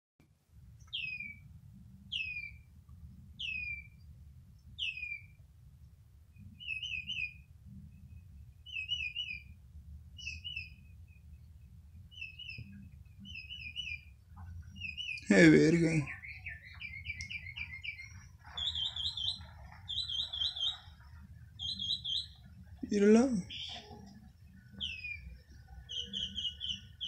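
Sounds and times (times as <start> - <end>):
low steady hum: 0.3 - 27.0
bird whistles and chirps: 0.9 - 1.5, 2.1 - 2.6, 3.4 - 4.0, 4.8 - 5.4, 6.5 - 7.5, 8.6 - 9.6, 10.2 - 11.0, 12.1 - 14.1, 14.7 - 15.3, 16.0 - 27.0.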